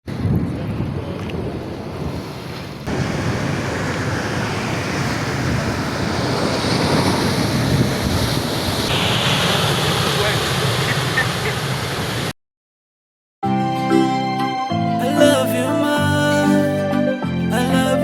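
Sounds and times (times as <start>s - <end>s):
wind buffeting microphone: 0.0s - 12.2s
ocean surf washing: 0.1s - 12.3s.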